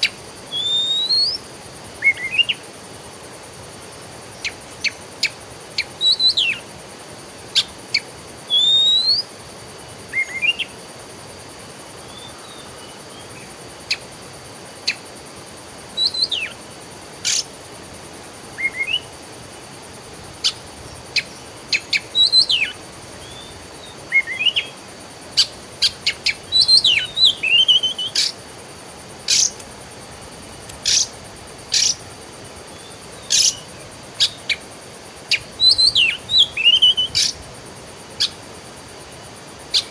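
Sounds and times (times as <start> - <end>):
songbirds chirping: 14.8 - 37.4.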